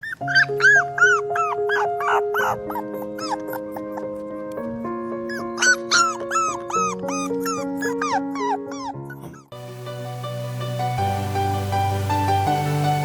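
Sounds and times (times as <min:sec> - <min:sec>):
puppy whimpering: 0:00.0 - 0:04.6, 0:05.3 - 0:09.5
soft background music: 0:00.0 - 0:13.0.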